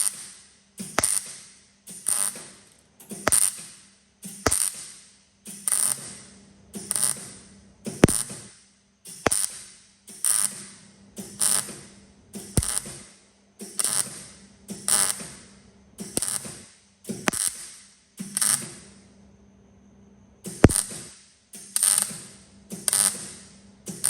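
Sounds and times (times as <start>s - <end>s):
welding arc crackling: 0.0s - 3.7s, 4.4s - 4.9s, 5.6s - 6.2s, 6.9s - 7.4s, 8.0s - 8.3s, 9.2s - 9.6s, 11.3s - 11.7s, 12.5s - 13.1s, 13.8s - 14.2s, 16.2s - 16.6s, 17.2s - 18.6s, 20.5s - 21.0s, 21.7s - 22.3s, 22.9s - 23.4s.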